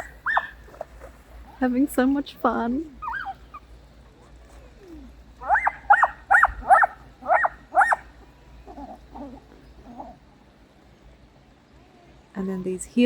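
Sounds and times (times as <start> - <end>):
dog yapping: 0.0 - 1.6, 2.9 - 3.7, 4.3 - 10.2.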